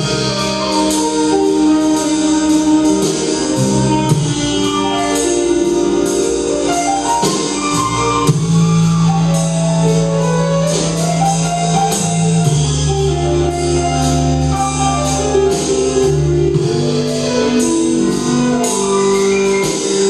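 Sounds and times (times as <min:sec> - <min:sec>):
bass line: 0:00.0 - 0:20.0
drums: 0:00.0 - 0:20.0
keyboard chords: 0:00.0 - 0:20.0.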